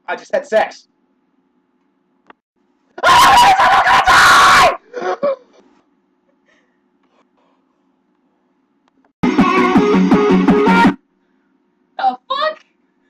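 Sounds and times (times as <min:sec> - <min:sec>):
person yelling: 0:03.0 - 0:04.8
person screaming: 0:03.0 - 0:05.2.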